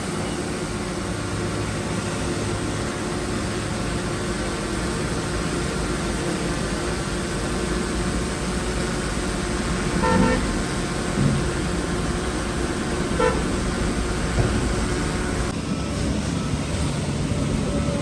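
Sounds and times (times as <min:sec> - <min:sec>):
heavy diesel machinery running: 0:00.0 - 0:18.0
short horn toot: 0:10.0 - 0:10.6, 0:13.2 - 0:13.5.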